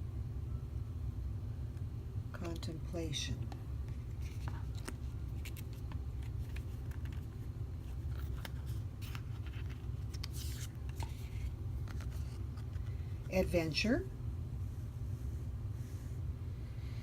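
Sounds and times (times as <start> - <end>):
steady low hum: 0.0 - 17.0
cards tapping: 4.2 - 7.4.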